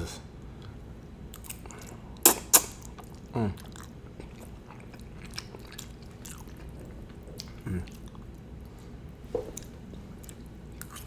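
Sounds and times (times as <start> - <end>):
chewing and mouth sounds: 1.3 - 11.0.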